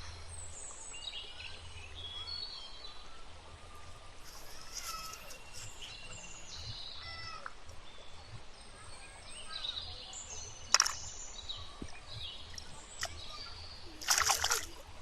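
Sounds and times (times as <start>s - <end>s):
outdoor background hiss: 0.0s - 15.0s
birds chirping and calling: 4.2s - 15.0s.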